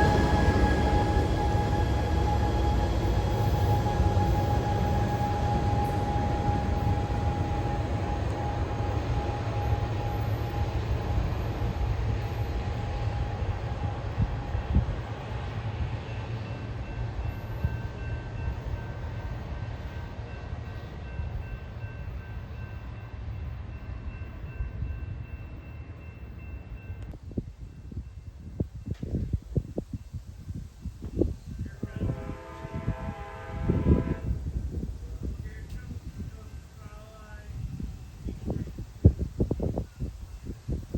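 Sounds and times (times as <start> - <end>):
steady high tone: 0.0 - 13.6
train rumbling past: 0.0 - 40.9.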